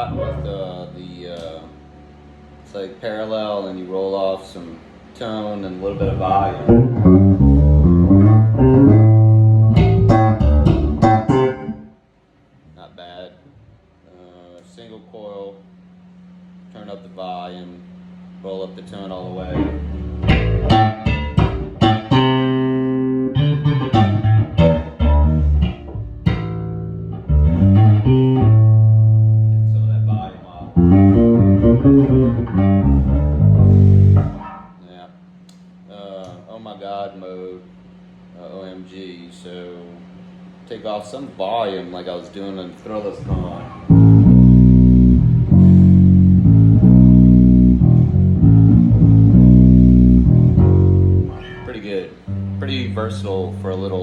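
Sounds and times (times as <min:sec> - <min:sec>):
electric bass plucked notes: 0:00.0 - 0:02.8, 0:05.9 - 0:12.0, 0:19.2 - 0:34.9, 0:43.3 - 0:54.0.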